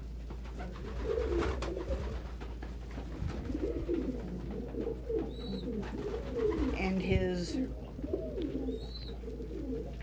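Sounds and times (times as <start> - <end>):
pigeons cooing: 0.6 - 2.2, 3.4 - 6.8, 7.6 - 10.0.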